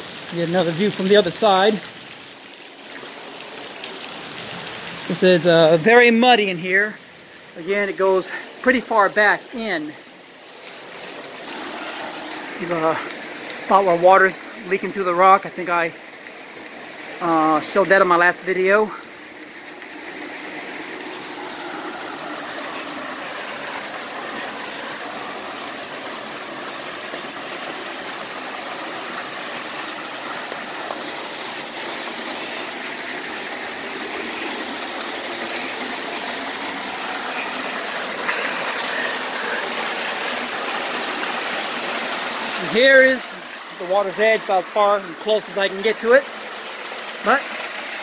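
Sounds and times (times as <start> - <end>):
waterfall splashing into pool: 0.0 - 48.0.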